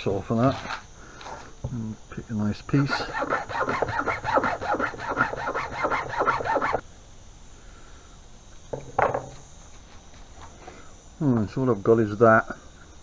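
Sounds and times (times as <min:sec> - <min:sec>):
hacksaw cutting cable: 0:02.9 - 0:06.8.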